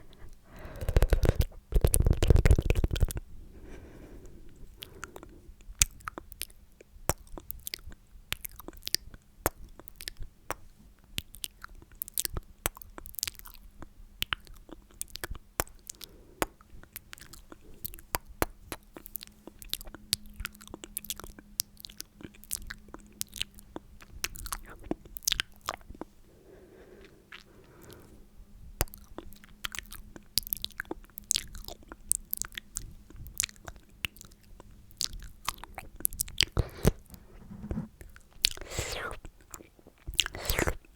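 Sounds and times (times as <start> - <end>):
wet mouth clicks and smacks: 0.6 - 3.2, 38.4 - 40.9.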